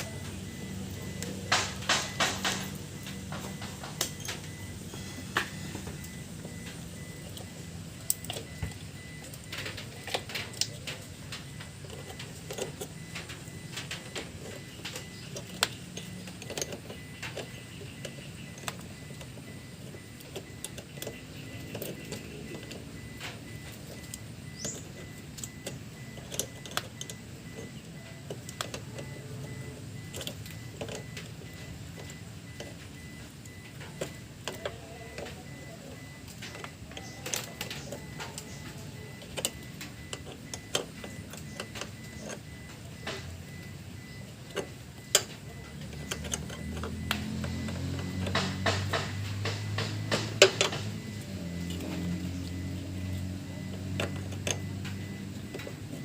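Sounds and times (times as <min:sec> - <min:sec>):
steady low hum: 0:00.0 - 0:56.0
clicks and knocks of handwork: 0:44.5 - 0:55.9.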